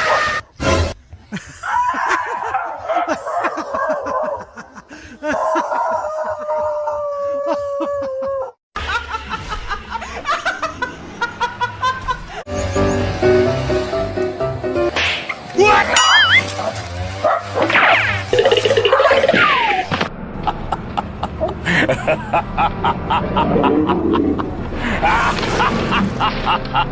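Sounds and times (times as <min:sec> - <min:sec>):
people laughing: 0:01.3 - 0:12.5, 0:20.4 - 0:26.9.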